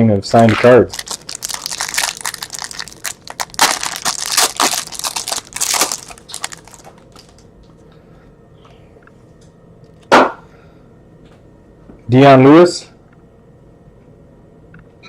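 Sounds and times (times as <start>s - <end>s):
plastic wrappers crinkling: 0.4s - 7.5s.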